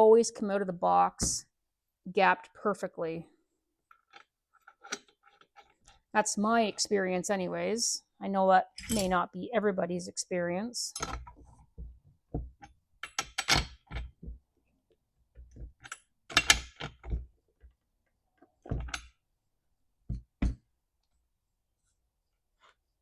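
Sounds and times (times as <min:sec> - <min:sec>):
metal tools knocking and clattering: 0:08.8 - 0:09.2.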